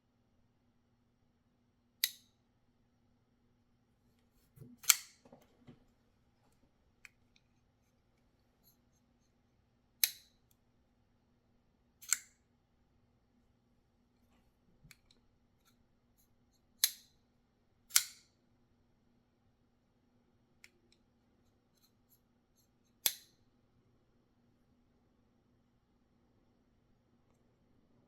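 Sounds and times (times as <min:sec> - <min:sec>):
knife snapping open and shut: 0:04.8 - 0:05.2, 0:10.0 - 0:10.4, 0:12.0 - 0:12.3, 0:16.8 - 0:17.1, 0:17.9 - 0:18.3, 0:23.0 - 0:23.4
faint small clicks: 0:20.6 - 0:21.1.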